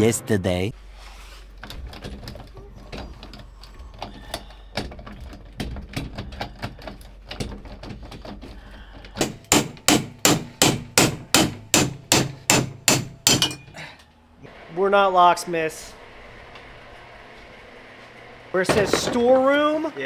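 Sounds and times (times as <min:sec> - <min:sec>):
hammer striking metal: 0:09.2 - 0:13.8.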